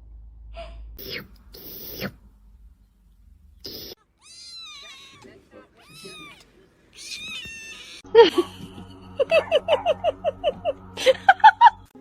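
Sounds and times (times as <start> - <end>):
cat meowing: 3.8 - 8.0.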